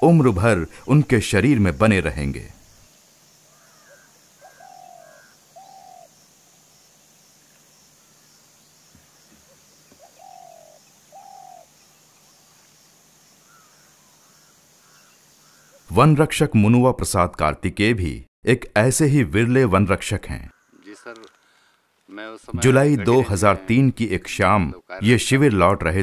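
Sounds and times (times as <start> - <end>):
faint high bird chirps: 2.5 - 15.9
short falling bird calls: 2.6 - 15.9, 20.5 - 22.2.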